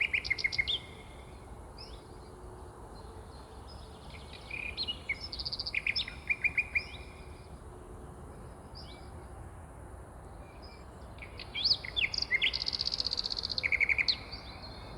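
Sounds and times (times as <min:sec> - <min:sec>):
songbirds singing: 0:00.0 - 0:07.4, 0:10.4 - 0:14.9
faint background hiss: 0:00.0 - 0:14.9.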